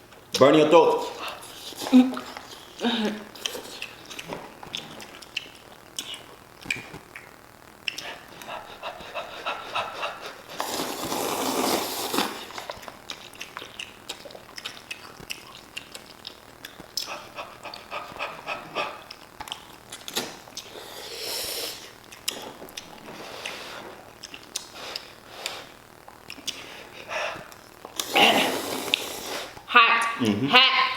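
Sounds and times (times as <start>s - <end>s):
people slurping noodles: 0.9s - 5.3s, 7.9s - 14.7s, 17.0s - 25.8s, 26.4s - 29.7s
mouth clicks and smacks: 3.4s - 8.6s, 12.6s - 20.7s, 24.2s - 26.7s.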